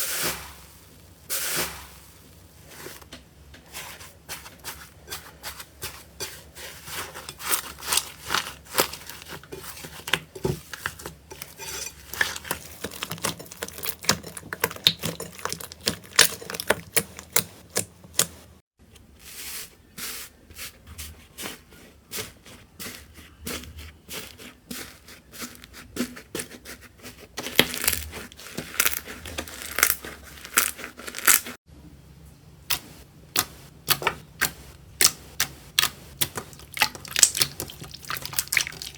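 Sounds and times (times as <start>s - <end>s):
slime crackling and popping: 27.4s - 31.6s, 35.8s - 38.9s.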